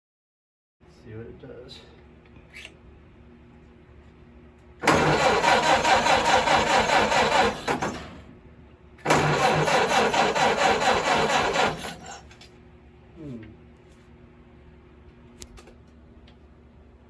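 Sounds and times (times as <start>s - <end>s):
engine cranked by starter: 4.8s - 8.2s, 9.0s - 12.2s.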